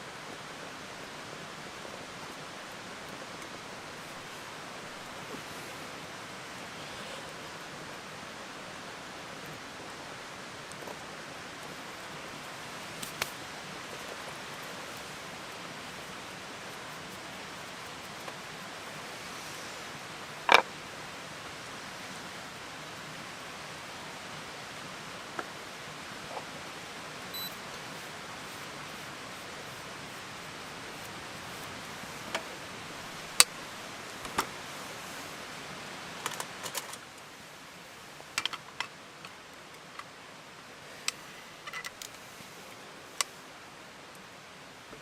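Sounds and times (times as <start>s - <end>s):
steady hiss: 0.0s - 45.0s
campfire crackling: 0.1s - 23.5s, 24.1s - 43.4s
fire snap: 12.8s - 13.5s.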